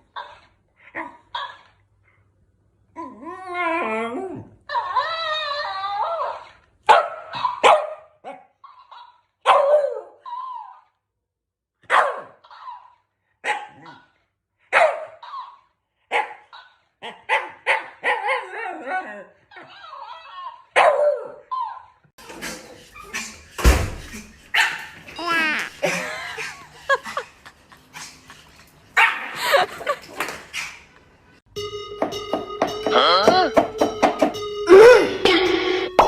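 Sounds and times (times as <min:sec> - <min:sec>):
dog barking: 0:06.9 - 0:10.2, 0:11.8 - 0:14.1, 0:14.7 - 0:15.5, 0:16.1 - 0:18.5, 0:20.7 - 0:21.4, 0:24.5 - 0:24.9.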